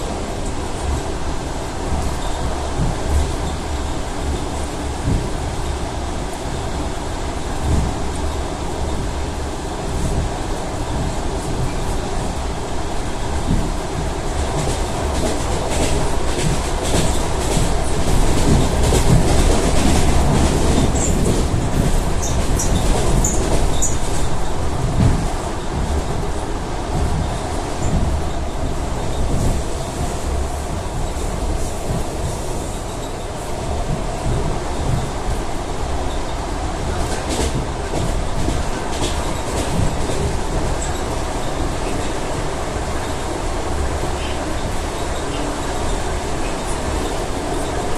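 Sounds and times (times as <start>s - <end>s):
train rolling rumble: 0.0s - 47.9s
train wheels clicking over rail joints: 13.3s - 26.3s.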